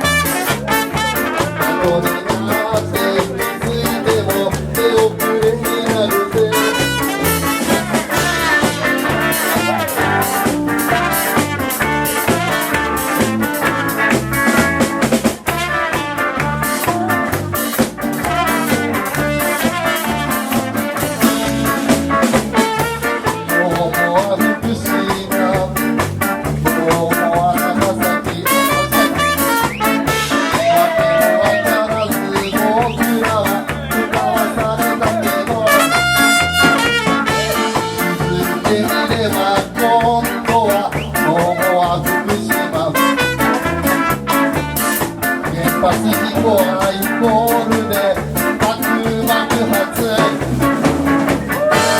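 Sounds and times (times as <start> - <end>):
horn lines: 0.0 - 2.7, 6.4 - 23.8, 27.8 - 33.3, 35.6 - 39.1, 42.9 - 45.3
live band playing ska: 0.0 - 51.9
steady drum beat: 0.0 - 51.9.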